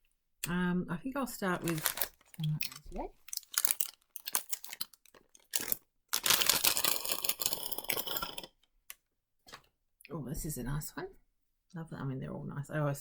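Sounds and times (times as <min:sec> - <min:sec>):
packaging rustling and crackling: 0:01.6 - 0:08.5
packaging tearing and crinkling: 0:01.6 - 0:08.5.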